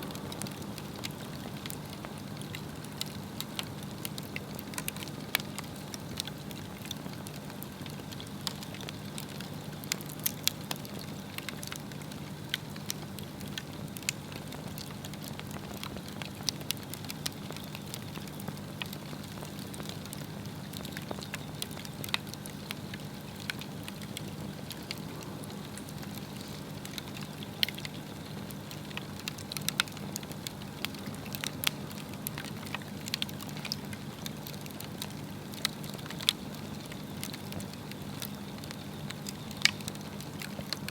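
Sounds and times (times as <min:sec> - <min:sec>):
steady low hum: 0:00.0 - 0:09.2, 0:18.5 - 0:40.9
log fire crackling and popping: 0:00.0 - 0:40.9.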